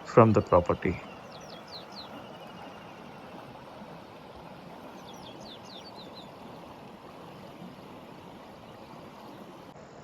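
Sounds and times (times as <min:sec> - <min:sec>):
bird chirping: 0:00.0 - 0:03.1, 0:05.0 - 0:06.3
outdoor background rush: 0:00.0 - 0:10.0.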